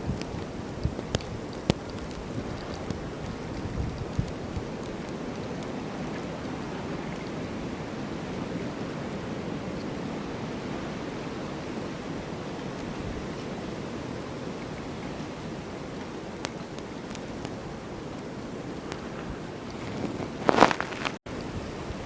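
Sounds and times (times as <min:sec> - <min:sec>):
faint ticks: 0:00.0 - 0:06.3
snowstorm wind blowing: 0:00.0 - 0:22.0.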